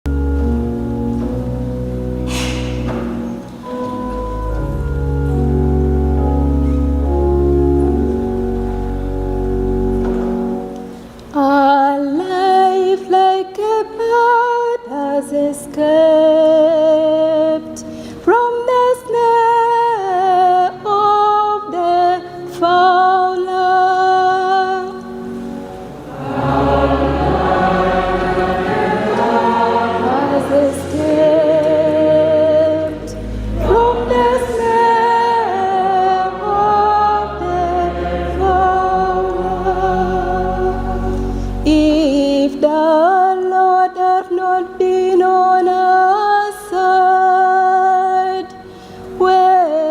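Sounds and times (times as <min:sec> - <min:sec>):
choir singing with deep bass: 0:25.9 - 0:42.4.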